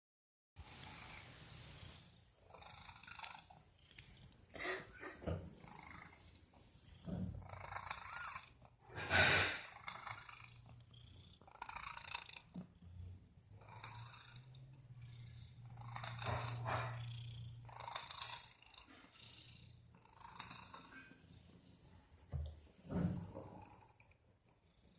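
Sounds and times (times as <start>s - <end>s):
cat purring: 0.6s - 24.9s.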